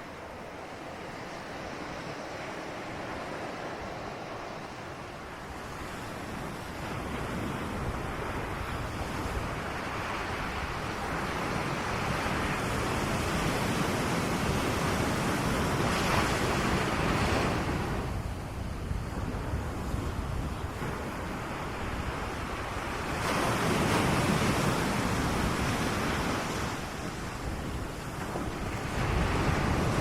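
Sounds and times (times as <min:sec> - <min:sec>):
ocean wave rushing: 0:00.0 - 0:18.3.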